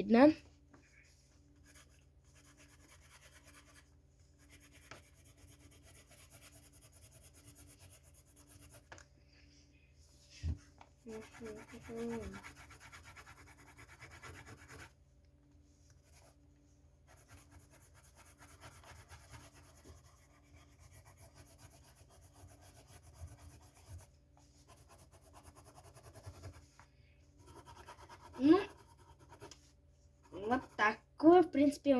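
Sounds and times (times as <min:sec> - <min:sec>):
pencil shading on paper: 0:01.0 - 0:09.0, 0:10.2 - 0:15.0, 0:15.8 - 0:16.4, 0:17.0 - 0:31.0.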